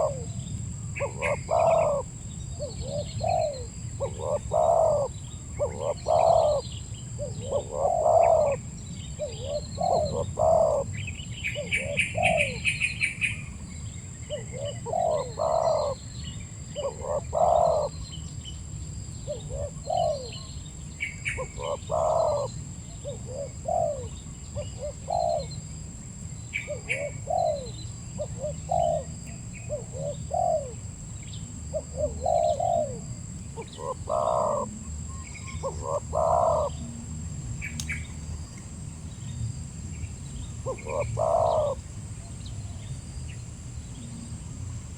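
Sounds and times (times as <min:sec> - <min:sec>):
dove cooing: 0:00.0 - 0:00.4, 0:01.0 - 0:13.4, 0:14.2 - 0:16.1, 0:16.7 - 0:18.0, 0:19.2 - 0:20.5, 0:21.1 - 0:25.6, 0:26.6 - 0:30.8, 0:31.7 - 0:36.8, 0:40.6 - 0:41.8
small birds chirping: 0:00.0 - 0:37.0, 0:37.6 - 0:44.6.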